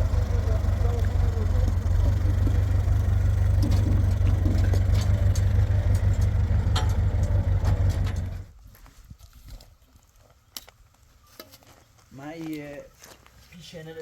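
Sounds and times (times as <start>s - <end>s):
engine idling: 0.0s - 8.6s.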